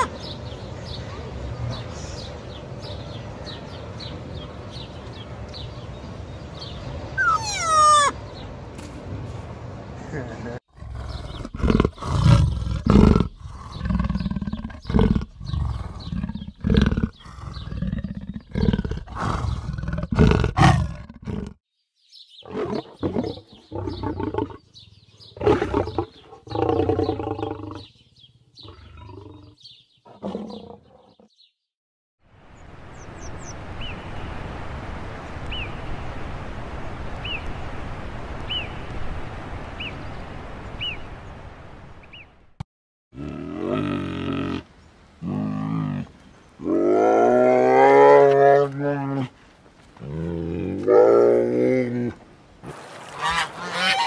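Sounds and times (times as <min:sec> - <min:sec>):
steady outdoor hiss: 0:00.0 - 0:20.5, 0:32.2 - 0:42.6, 0:43.2 - 0:53.8
leopard growling: 0:10.7 - 0:21.6
lion growling and roaring: 0:10.7 - 0:21.6, 0:25.4 - 0:27.9, 0:28.6 - 0:31.4, 0:43.2 - 0:49.3, 0:50.0 - 0:52.2.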